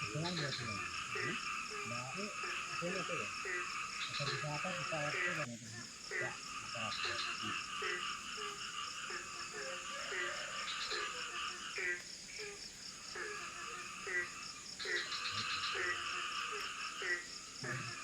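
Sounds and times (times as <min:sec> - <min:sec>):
frogs croaking: 0:00.0 - 0:18.0
insects chirring: 0:00.0 - 0:18.0.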